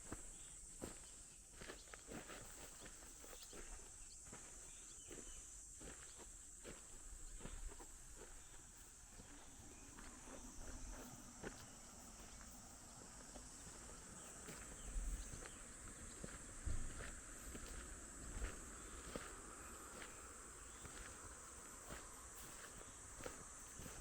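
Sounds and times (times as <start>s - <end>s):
faint footsteps: 0.0s - 24.0s.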